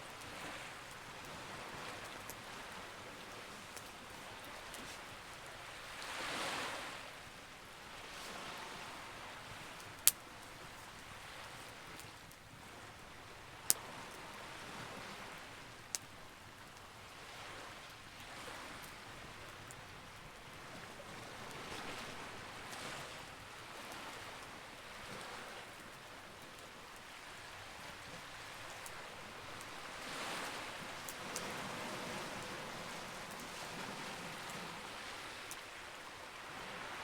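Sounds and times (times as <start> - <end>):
sea waves washing in: 0.0 - 12.0, 27.1 - 37.0
campfire crackling and popping: 0.1 - 5.8, 9.5 - 14.1, 27.7 - 33.6.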